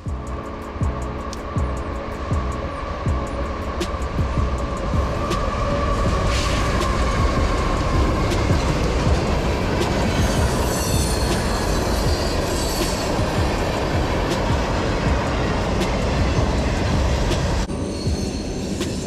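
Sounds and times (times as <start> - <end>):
train wheels rumbling on rails: 0.0 - 19.0
wheel squeal: 9.8 - 13.4, 17.6 - 19.0.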